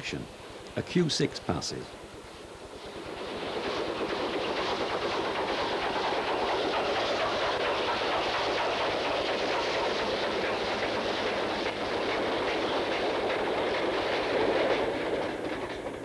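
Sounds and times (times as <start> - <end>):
steam freight train rumbling past: 0.0 - 16.0
wagon wheels clicking on track: 3.2 - 16.0.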